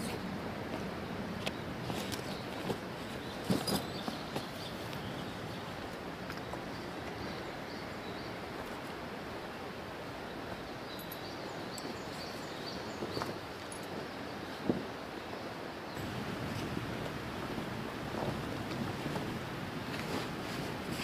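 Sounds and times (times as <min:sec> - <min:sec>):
steady rushing noise: 0:16.0 - 0:21.0.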